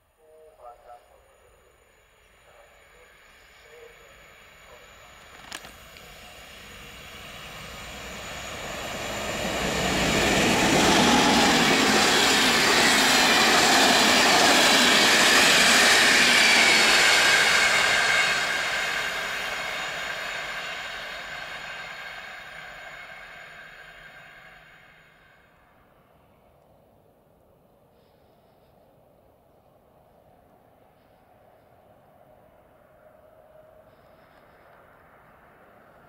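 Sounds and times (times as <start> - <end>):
electric train passing: 0.0 - 27.5, 29.8 - 36.0
wheel-and-rail noise: 2.8 - 25.4.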